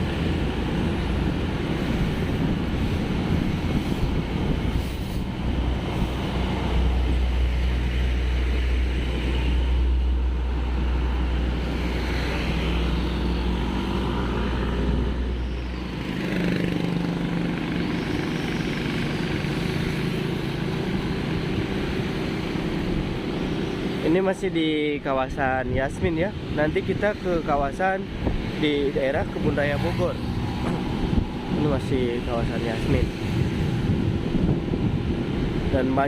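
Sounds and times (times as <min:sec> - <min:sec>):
wind rumble on microphone: 0:00.0 - 0:17.6, 0:25.1 - 0:36.0
vehicle engine and road noise: 0:00.0 - 0:36.0.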